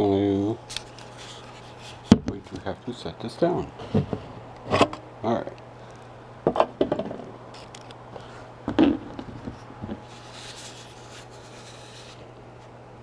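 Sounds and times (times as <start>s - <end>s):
soft rustle: 9.2s - 12.7s.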